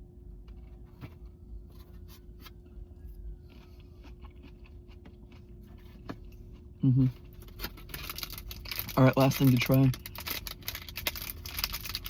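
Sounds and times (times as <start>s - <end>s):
faint steady hum: 0.0s - 12.0s
clicks and scrapes of eating: 7.2s - 12.0s.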